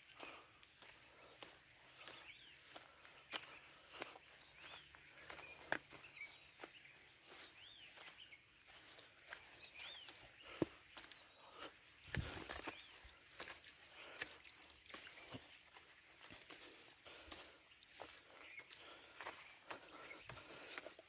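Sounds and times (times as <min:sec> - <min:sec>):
bird chirping: 0:01.1 - 0:16.6.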